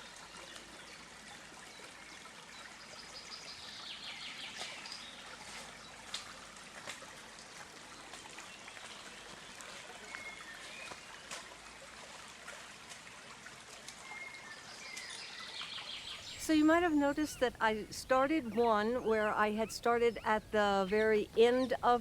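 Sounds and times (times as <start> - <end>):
stream trickling: 0.0 - 22.0
bird chirps: 14.2 - 22.0.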